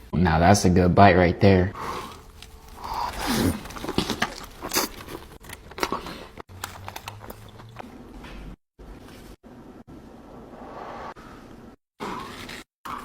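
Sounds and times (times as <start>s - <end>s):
close chewing of crunchy food: 1.8s - 8.2s.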